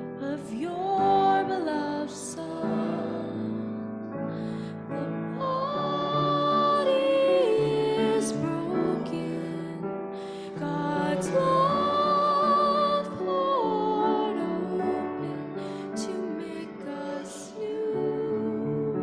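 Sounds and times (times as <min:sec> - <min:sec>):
voices singing a hymn: 0:00.4 - 0:19.0.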